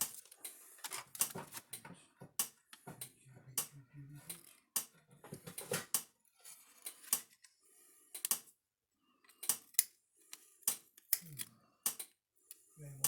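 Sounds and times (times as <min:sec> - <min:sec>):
metal tools clicking and tapping: 0:00.0 - 0:06.1, 0:08.1 - 0:08.5, 0:09.2 - 0:12.6.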